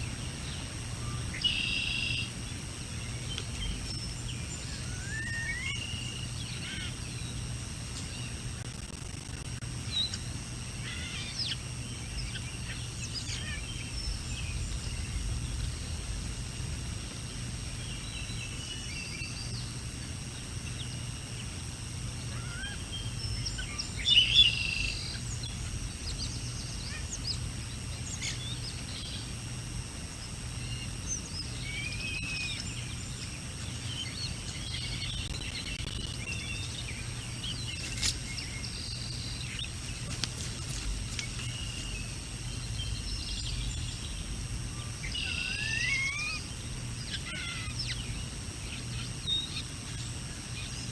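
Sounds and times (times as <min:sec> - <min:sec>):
low background noise: 0:00.0 - 0:50.9
birds chirping and calling: 0:03.0 - 0:15.9, 0:22.2 - 0:29.3, 0:30.6 - 0:50.9.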